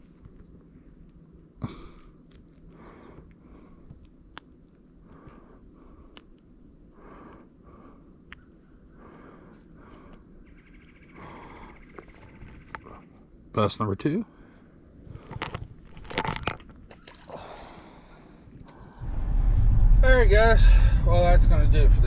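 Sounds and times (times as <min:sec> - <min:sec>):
insects trilling: 0:00.0 - 0:19.0
faint rustling: 0:14.9 - 0:17.3.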